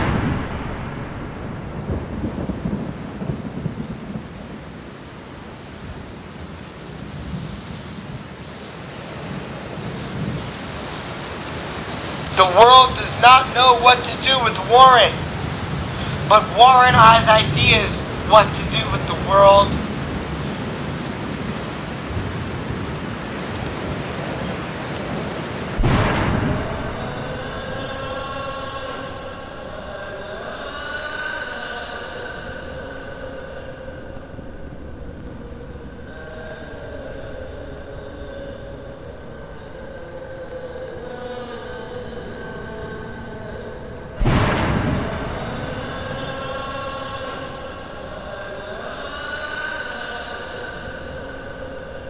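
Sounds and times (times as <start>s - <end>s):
rolling thunder: 0.0s - 14.5s, 15.1s - 29.4s, 44.2s - 48.4s
rain hiss: 0.0s - 52.0s.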